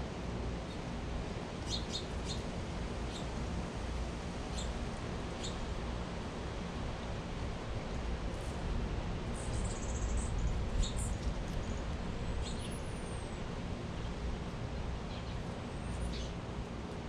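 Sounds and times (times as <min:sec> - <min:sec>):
outdoor hiss and rumble: 0:00.0 - 0:17.0
small birds chirping: 0:01.6 - 0:02.5, 0:03.1 - 0:03.3, 0:04.5 - 0:04.8, 0:05.4 - 0:05.6, 0:09.4 - 0:13.4, 0:15.1 - 0:16.4.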